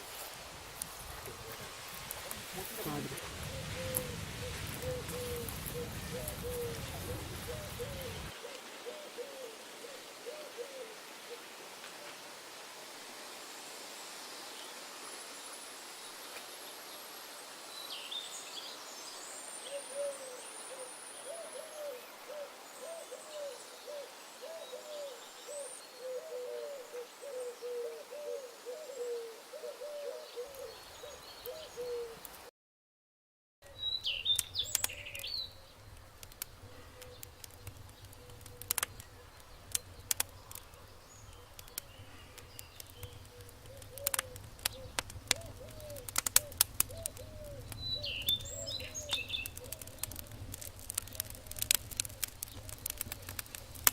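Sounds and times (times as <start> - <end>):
sharp clicks: 34.3 - 35.3, 35.9 - 47.8, 48.4 - 53.9.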